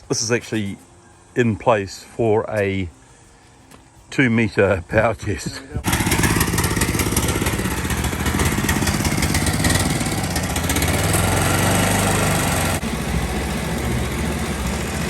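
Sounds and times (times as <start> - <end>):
boat motor engine revving: 5.8 - 15.0.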